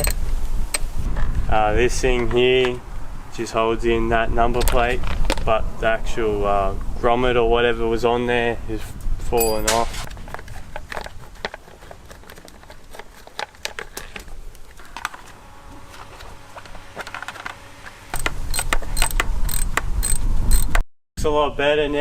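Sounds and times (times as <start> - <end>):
metallic clicks of tools and bolts: 0.0 - 0.8, 9.4 - 9.9, 18.2 - 20.8.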